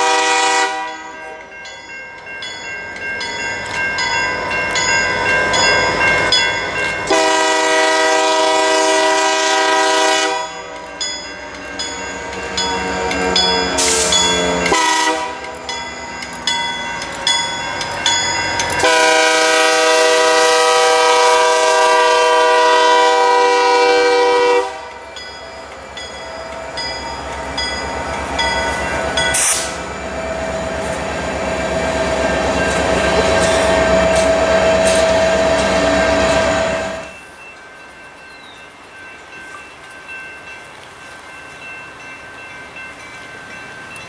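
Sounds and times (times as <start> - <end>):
locomotive horn blast: 0.0 - 1.1, 7.1 - 10.7, 13.3 - 15.6, 18.8 - 25.0, 32.9 - 37.1.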